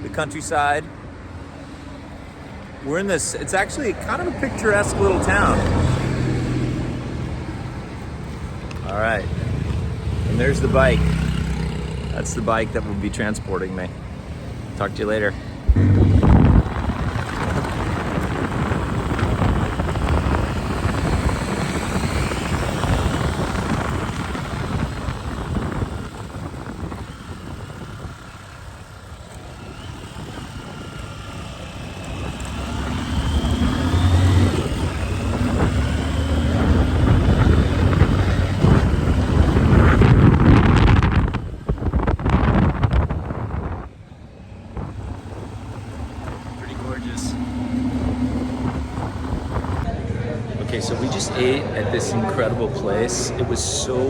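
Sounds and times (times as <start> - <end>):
motorcycle engine accelerating: 4.1 - 12.9, 15.6 - 51.0.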